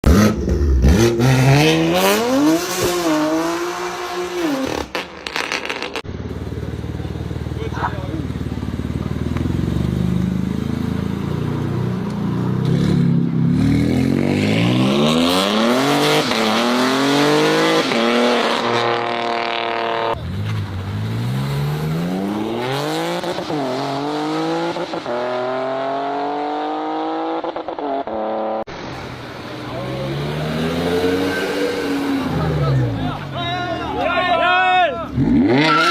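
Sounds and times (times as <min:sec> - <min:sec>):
car engine accelerating hard: 0:06.6 - 0:28.7.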